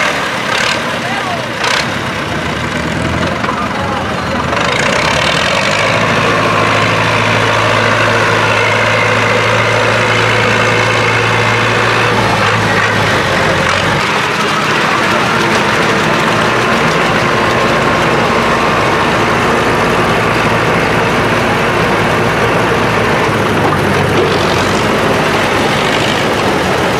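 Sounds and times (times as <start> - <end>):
tractor engine running: 0.0 - 26.9.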